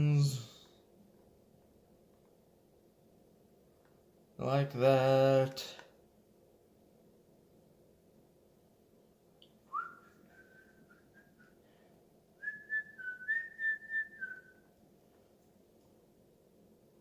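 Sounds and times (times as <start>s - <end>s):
person whistling softly: 9.7s - 11.8s, 12.4s - 14.7s.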